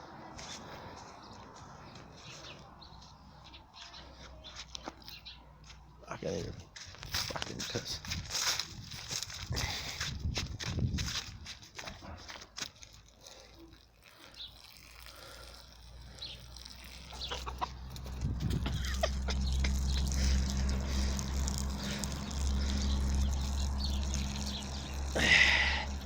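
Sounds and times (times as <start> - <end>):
steady low hum: 15.2 - 26.0
chicken clucking: 17.2 - 17.8.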